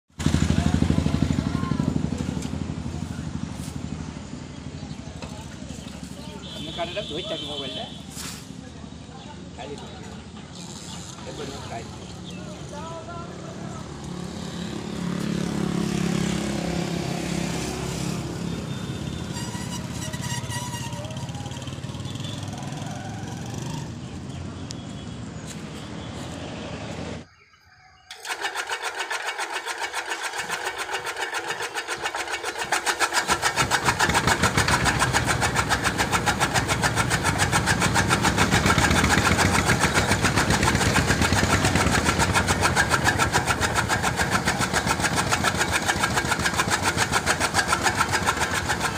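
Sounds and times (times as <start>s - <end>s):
chaff cutter machine clattering: 28.1s - 48.9s.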